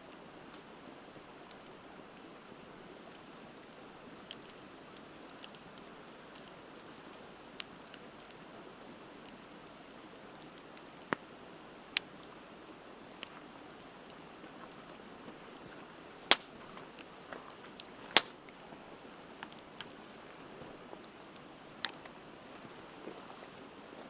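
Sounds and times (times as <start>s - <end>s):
wood bonfire crackling: 0.0s - 24.0s
sharp pops of fire: 16.3s - 17.1s, 17.7s - 18.5s.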